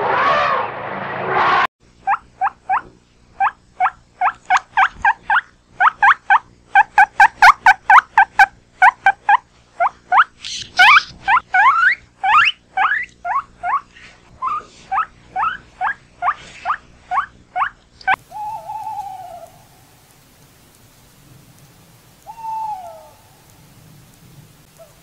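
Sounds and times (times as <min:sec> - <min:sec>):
guinea pigs squeaking: 0:02.0 - 0:02.8, 0:03.4 - 0:18.2.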